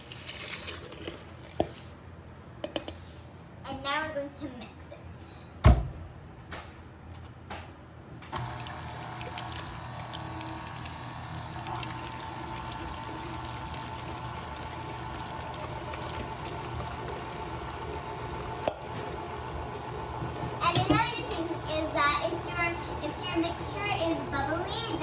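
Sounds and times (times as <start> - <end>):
wet batter sloshing: 0.0 - 2.4
electric mixer running: 8.4 - 25.0.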